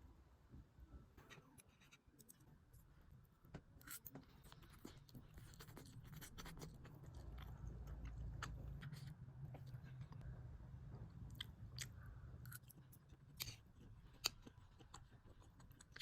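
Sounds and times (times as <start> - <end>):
low hum: 7.0 - 13.0.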